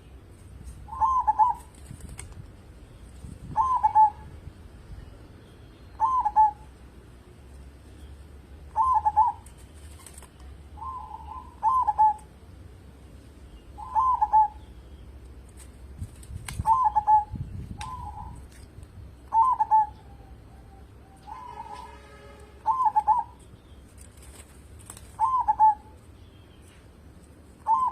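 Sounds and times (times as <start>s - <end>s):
dove cooing: 0.9s - 1.7s, 3.5s - 4.3s, 6.0s - 6.6s, 8.8s - 9.4s, 10.8s - 12.3s, 13.8s - 14.6s, 16.6s - 18.4s, 19.3s - 22.0s, 22.6s - 23.4s, 25.2s - 26.0s, 27.6s - 27.9s.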